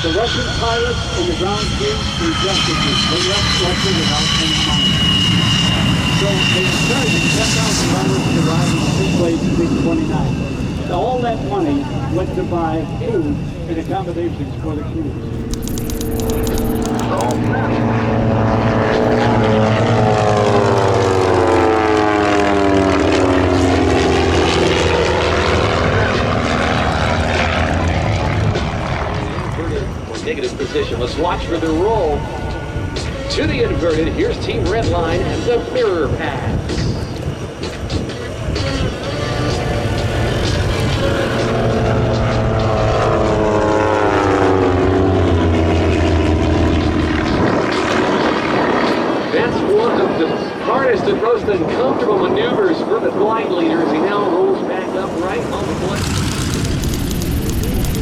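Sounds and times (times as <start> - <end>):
propeller airplane flying past: 14.4 - 34.4, 37.3 - 49.4, 53.9 - 58.0.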